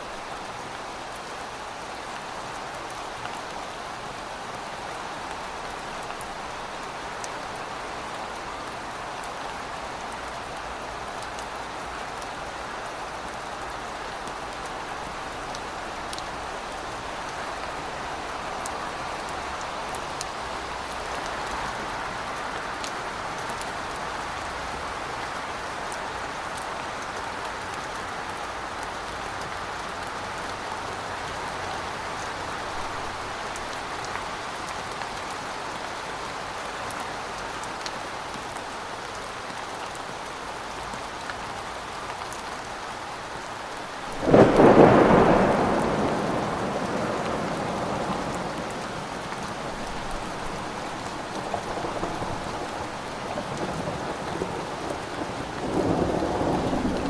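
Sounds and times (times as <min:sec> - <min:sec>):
steady rain falling: 0:00.0 - 0:57.0
loud thunderclap rumbling: 0:44.2 - 0:57.0.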